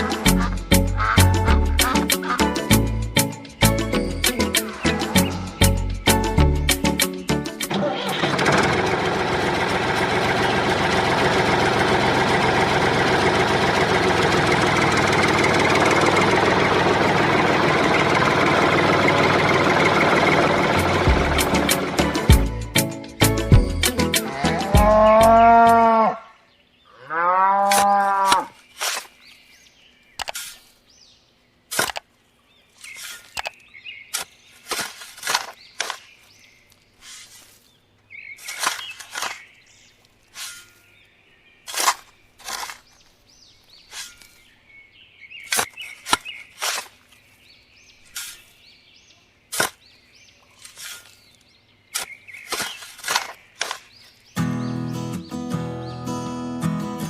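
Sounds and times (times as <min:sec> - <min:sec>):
cow mooing: 0:24.2 - 0:28.6.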